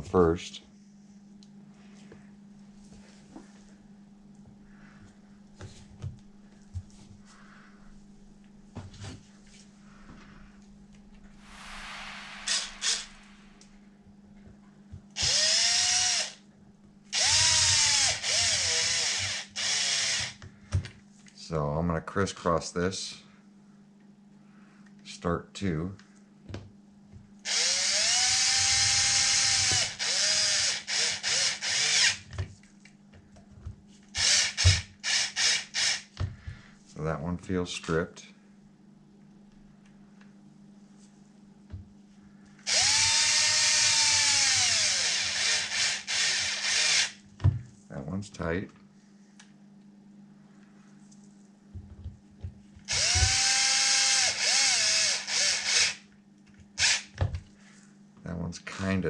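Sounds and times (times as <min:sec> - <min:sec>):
power drill driving screws: 0:15.2 - 0:16.4, 0:17.2 - 0:20.4, 0:27.5 - 0:32.2, 0:34.2 - 0:36.0, 0:42.7 - 0:47.1, 0:52.9 - 0:56.0, 0:56.8 - 0:57.1.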